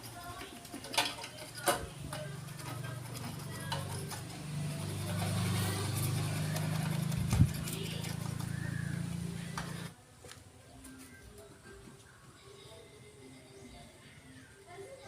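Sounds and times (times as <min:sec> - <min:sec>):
engine running with low hum: 0:01.6 - 0:09.9.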